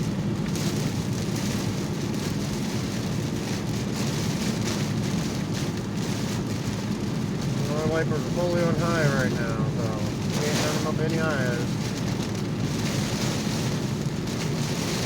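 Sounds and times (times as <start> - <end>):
car engine and tyre noise: 0.0 - 15.0
heavy rain on car roof: 0.0 - 15.0
windshield wipers sweeping: 0.3 - 15.0.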